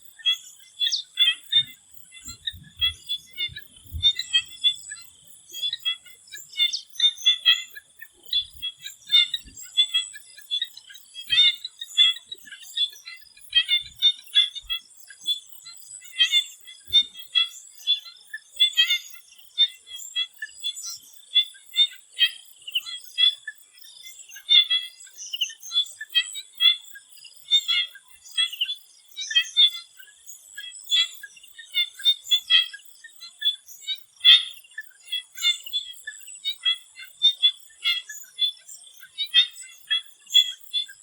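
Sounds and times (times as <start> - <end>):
frogs calling: 0.0 - 41.0.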